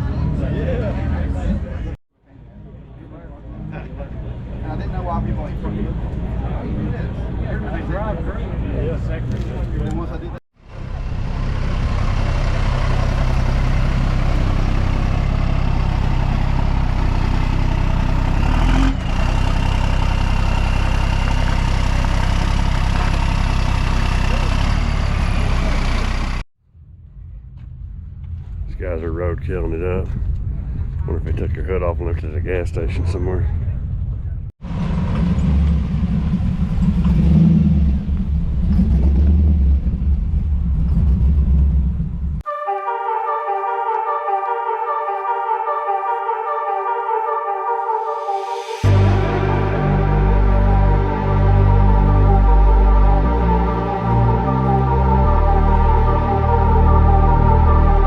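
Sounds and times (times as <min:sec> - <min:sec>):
car engine droning: 0:02.6 - 0:30.8, 0:34.1 - 0:42.4, 0:48.0 - 0:58.0
piano music: 0:42.5 - 0:58.0.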